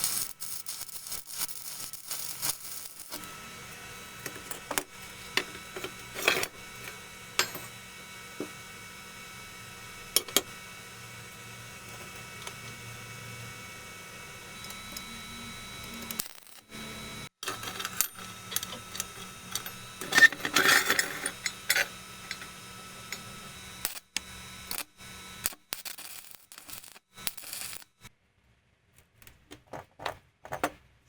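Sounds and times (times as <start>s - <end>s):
metal pieces clinking: 0.0s - 3.2s, 4.2s - 7.7s, 17.4s - 22.5s.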